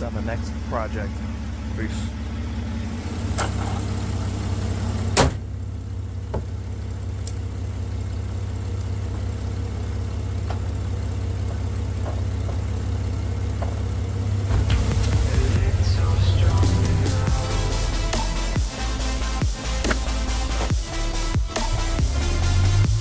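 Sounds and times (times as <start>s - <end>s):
car engine idling: 0.0s - 23.0s
car hood slamming: 5.1s - 5.5s.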